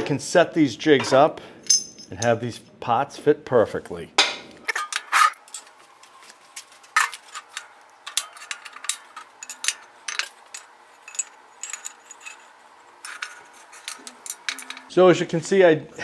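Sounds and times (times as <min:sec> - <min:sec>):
steel parts clanking on metal table: 0:01.0 - 0:02.3, 0:04.7 - 0:05.8, 0:06.6 - 0:14.9.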